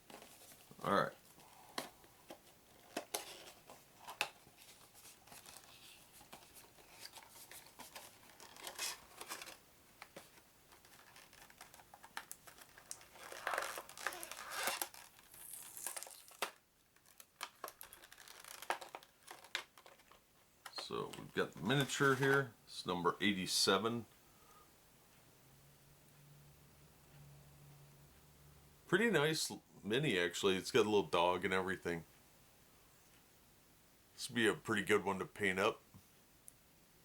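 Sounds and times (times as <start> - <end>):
plastic shrink-wrap crinkling and tearing: 10.7 - 20.2.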